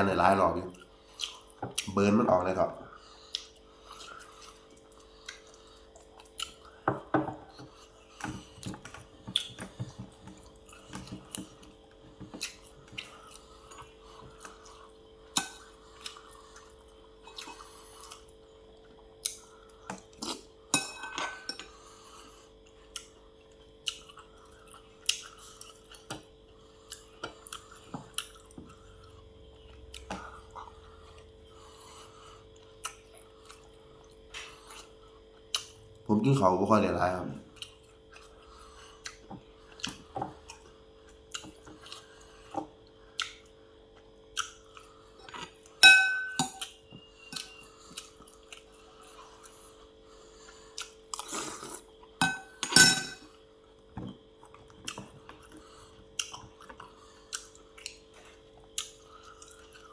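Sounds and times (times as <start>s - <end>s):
faint steady hum: 0.0s - 59.9s
cutlery clinking on plates: 45.8s - 46.7s, 52.2s - 53.3s.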